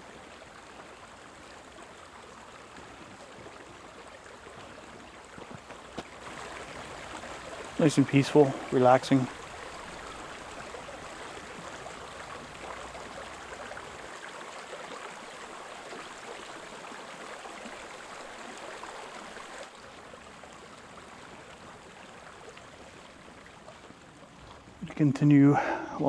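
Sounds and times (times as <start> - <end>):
creek water rushing: 0.0 - 26.0.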